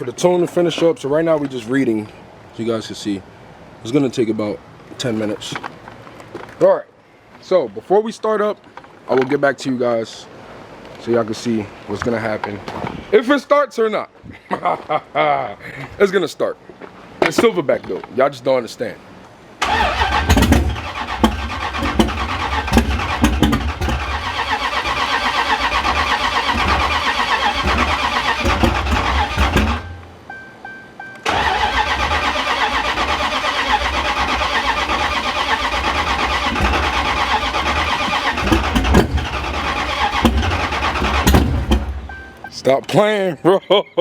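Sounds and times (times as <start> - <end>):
engine cranking on starter: 19.6 - 30.1, 31.2 - 42.3.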